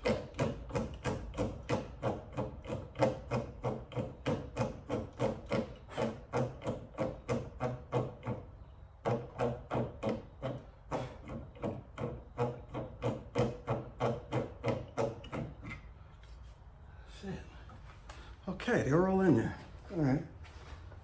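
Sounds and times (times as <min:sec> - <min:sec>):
hand rivet tool strokes creaking: 0:00.0 - 0:15.9.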